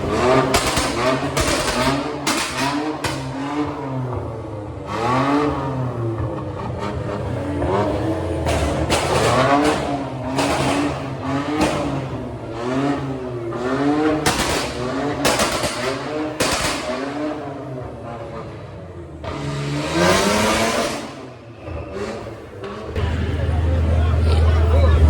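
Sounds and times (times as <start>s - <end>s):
sharp bangs: 0.0s - 3.7s, 13.0s - 17.6s
car engine revving: 0.0s - 25.0s.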